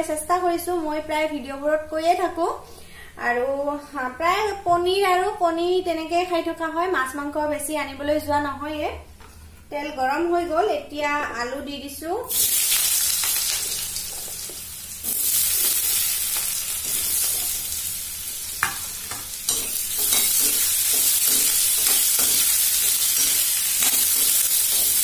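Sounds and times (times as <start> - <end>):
potatoes sizzling in oil: 12.3 - 25.0
metal spoon scraping pan: 18.6 - 25.0.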